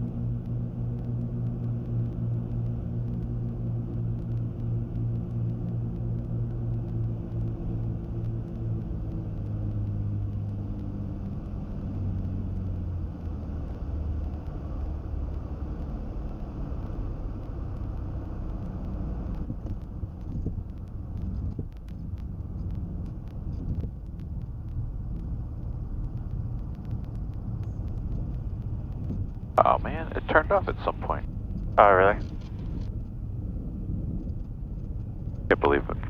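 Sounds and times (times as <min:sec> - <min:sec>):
aircraft piston engines droning: 0:27.0 - 0:36.0.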